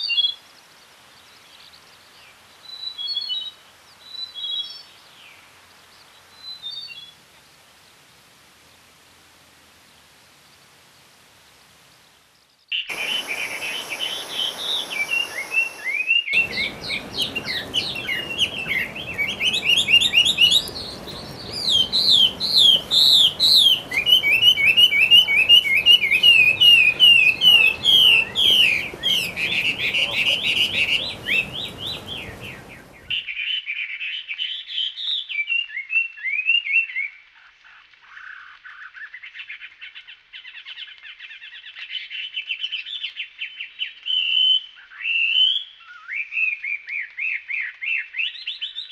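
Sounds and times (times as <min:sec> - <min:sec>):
faint hiss: 0:00.0 - 0:33.2
songbird whistling song: 0:02.6 - 0:05.4, 0:06.3 - 0:07.2, 0:12.7 - 0:37.2, 0:38.2 - 0:48.9.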